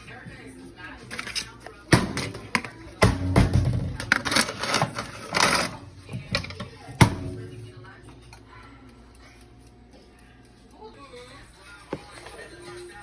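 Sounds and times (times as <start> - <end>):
kitchen clicks and knocks: 1.1 - 7.2
scraping: 4.0 - 6.6.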